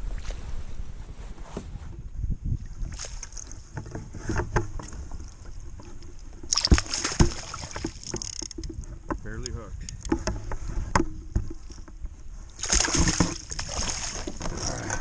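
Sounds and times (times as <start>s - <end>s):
knocks in a kayak: 3.7s - 14.6s
fish splashing in water: 6.5s - 8.6s, 12.6s - 14.5s.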